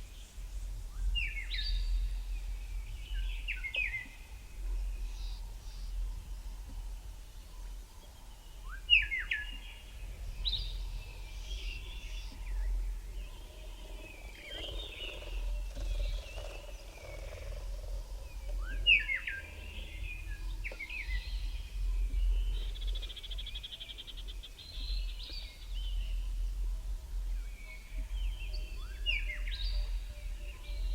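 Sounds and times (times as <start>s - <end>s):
low steady rumble: 0.0s - 30.9s
birds chirping and whistling: 8.7s - 26.2s.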